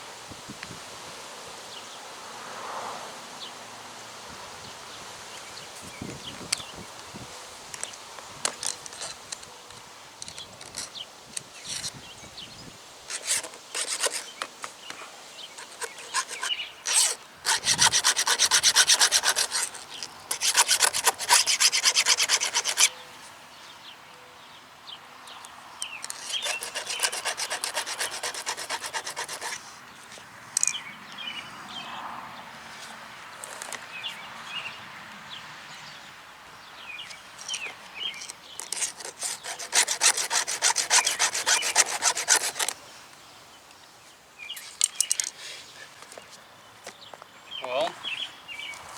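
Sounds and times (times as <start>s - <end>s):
file rasping on chainsaw chain: 13.1s - 14.7s, 15.5s - 22.9s, 26.0s - 29.7s, 38.6s - 42.8s.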